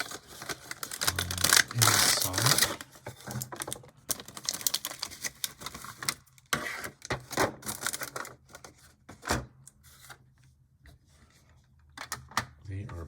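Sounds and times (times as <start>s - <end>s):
packaging rustle: 0.0s - 8.9s.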